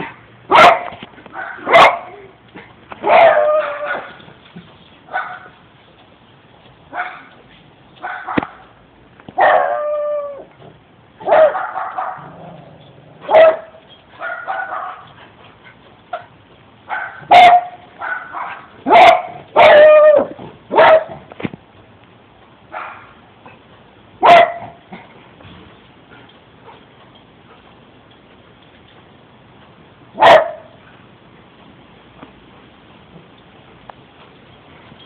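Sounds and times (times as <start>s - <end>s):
puppy barking and howling: 3.0s - 4.2s, 9.4s - 10.5s, 16.9s - 21.1s.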